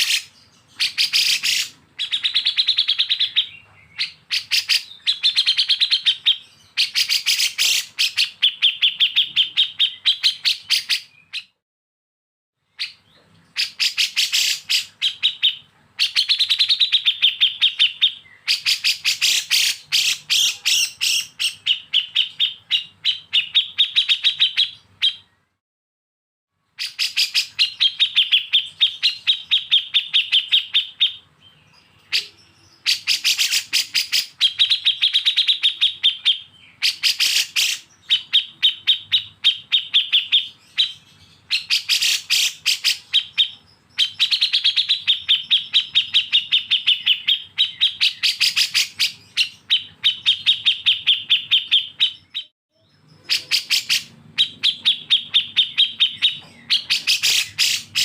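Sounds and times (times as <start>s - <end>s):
songbird singing harsh notes: 0.0s - 11.6s, 12.8s - 25.4s, 26.8s - 58.0s.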